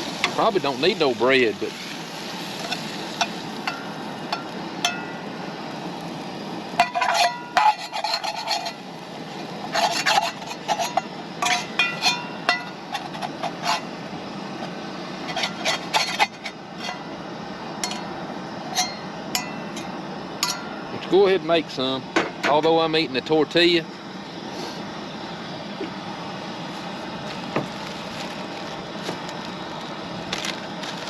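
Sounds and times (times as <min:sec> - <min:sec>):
steady background hiss: 0:00.0 - 0:31.0
metal cookware scraping and clinking: 0:02.6 - 0:05.2, 0:06.8 - 0:08.8, 0:09.6 - 0:13.9, 0:15.2 - 0:17.1, 0:17.8 - 0:18.1, 0:18.7 - 0:20.8.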